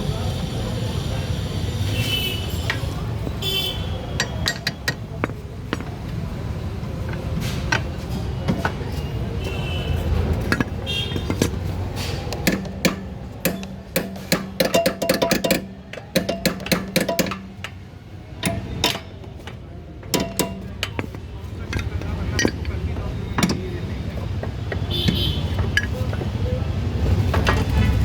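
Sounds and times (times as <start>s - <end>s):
metallic clinks of hand tools: 12.5s - 17.8s, 18.4s - 19.2s.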